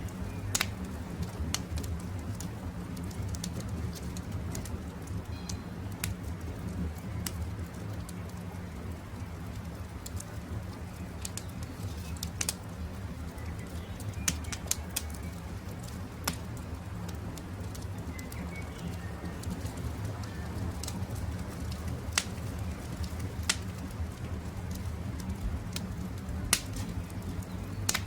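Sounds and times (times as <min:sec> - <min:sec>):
campfire crackling and popping: 0:00.0 - 0:28.0
fire low rumble: 0:00.0 - 0:28.0.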